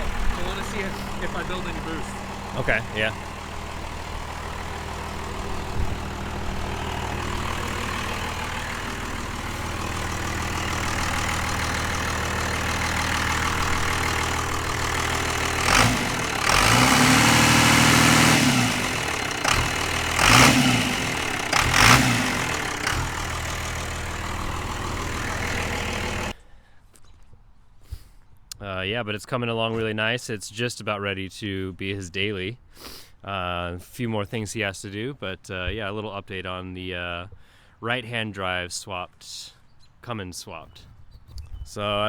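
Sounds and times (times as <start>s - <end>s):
diesel engine idling and revving: 0.0s - 26.4s.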